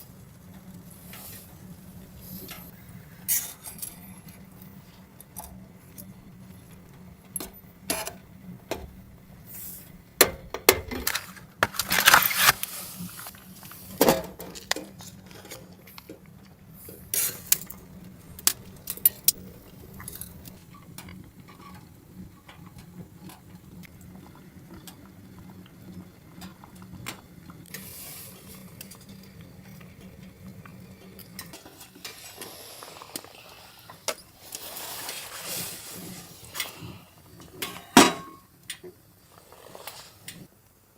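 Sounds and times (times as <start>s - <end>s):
metal pots and utensils clinking: 6.8s - 9.0s, 10.2s - 12.6s, 13.2s - 23.5s, 31.0s - 32.5s, 33.9s - 39.0s.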